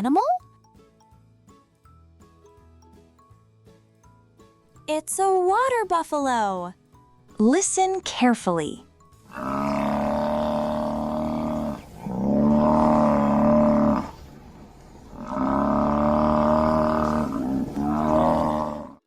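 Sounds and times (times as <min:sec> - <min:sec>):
water buffalo bellowing: 0:09.3 - 0:14.3, 0:15.1 - 0:19.0.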